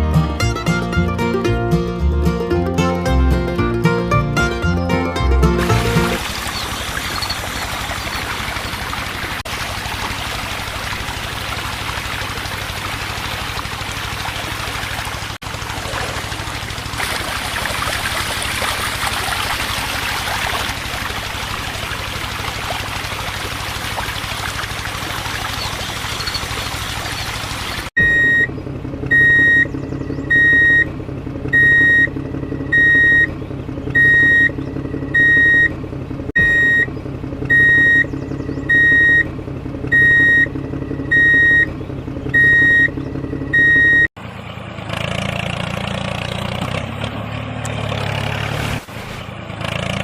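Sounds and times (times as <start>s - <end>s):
rough mechanical running: 5.6s - 43.6s
electronic reversing beeps: 5.8s - 8.2s, 28.0s - 30.9s, 31.5s - 33.3s, 33.9s - 35.7s, 36.4s - 36.9s, 37.5s - 39.3s, 39.9s - 41.7s, 42.3s - 44.1s.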